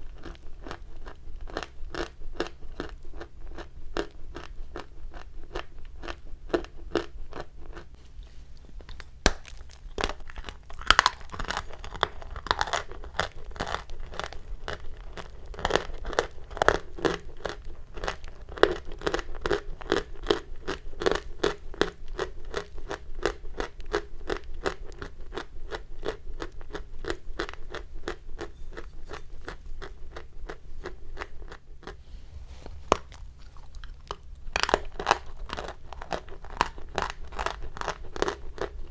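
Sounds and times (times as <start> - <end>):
chalk crunching: 31.8 - 36.5.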